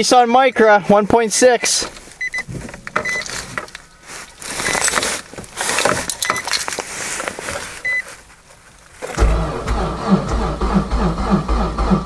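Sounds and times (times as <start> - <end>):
car warning chime beeps: 2.2 - 3.4, 7.8 - 8.1
keys clinking: 2.8 - 6.9.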